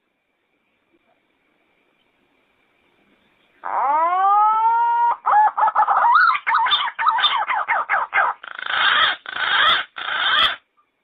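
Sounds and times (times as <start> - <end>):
pigeon calling: 3.6 - 10.6.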